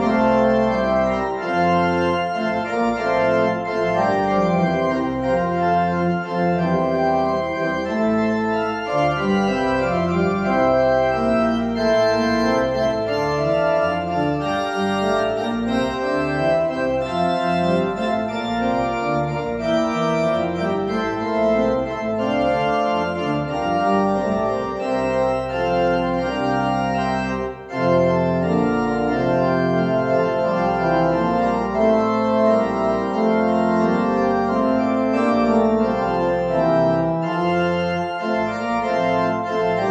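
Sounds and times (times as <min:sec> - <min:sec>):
organ playing chords: 0:00.0 - 0:39.9.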